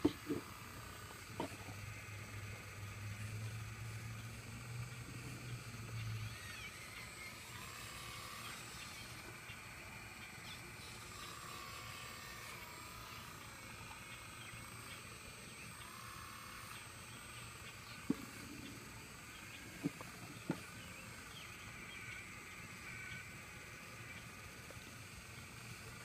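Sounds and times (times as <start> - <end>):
birds chirping: 16.6 - 23.3.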